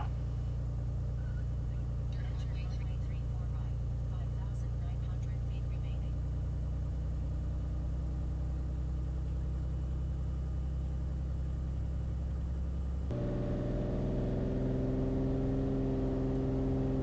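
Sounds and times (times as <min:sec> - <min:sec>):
propeller plane engine: 0:06.7 - 0:17.0.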